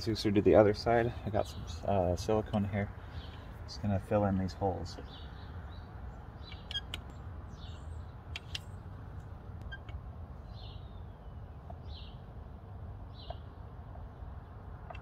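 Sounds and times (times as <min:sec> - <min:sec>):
sharp clicks: 0:06.4 - 0:07.2, 0:08.3 - 0:10.0
bird calling with sliding notes: 0:06.4 - 0:08.8.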